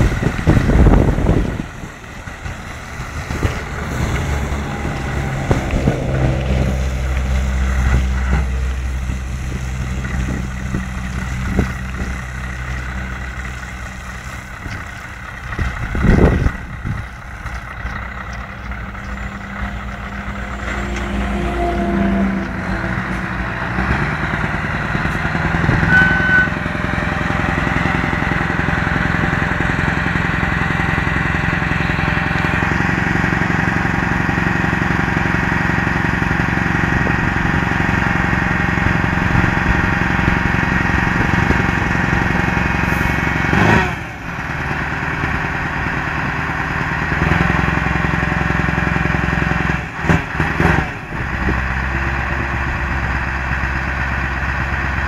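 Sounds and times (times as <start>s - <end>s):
diesel truck engine running: 0.0s - 55.0s
short beep: 25.8s - 26.7s.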